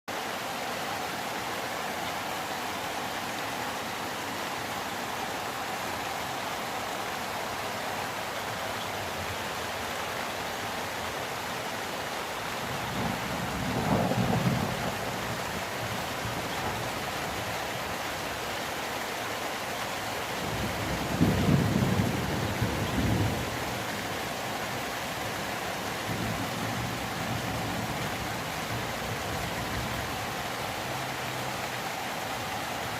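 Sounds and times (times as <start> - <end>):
steady rain falling: 0.1 - 32.9
low rumble of thunder: 12.7 - 17.0, 20.4 - 23.9.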